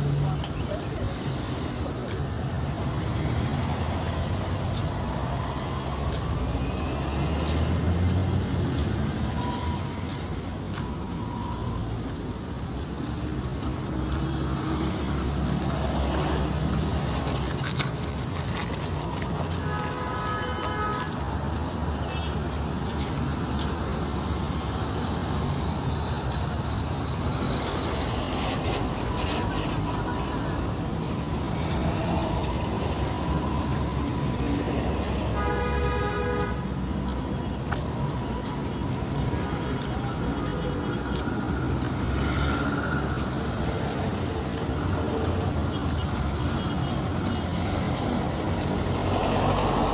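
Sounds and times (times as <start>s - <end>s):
road traffic rumble: 0.0s - 49.9s
vehicle horn: 35.4s - 36.6s.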